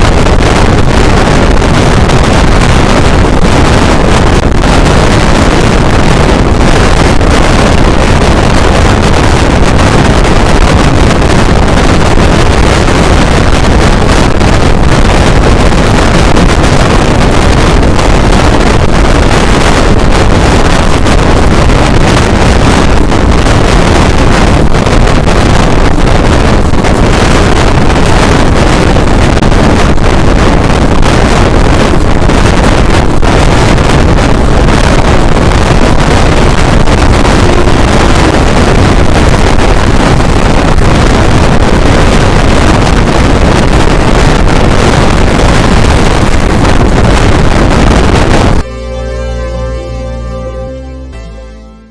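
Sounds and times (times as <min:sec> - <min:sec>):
wind buffeting microphone: 0:00.0 - 0:49.7
passenger train roaring: 0:37.2 - 0:38.9.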